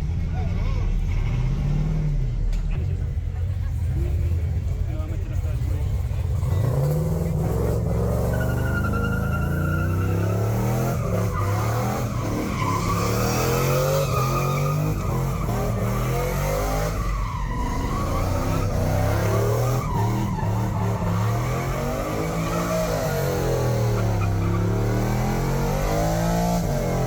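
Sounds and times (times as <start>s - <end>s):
engine revving: 0.0s - 27.0s
tyres squealing on pavement: 6.3s - 27.0s.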